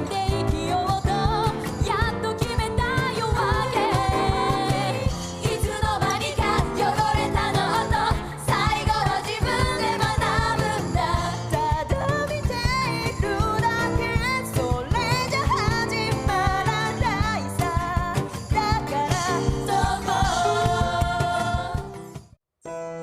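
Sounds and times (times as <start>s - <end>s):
women singing pop song: 0.0s - 22.2s
acoustic band with steady beat: 0.0s - 22.4s.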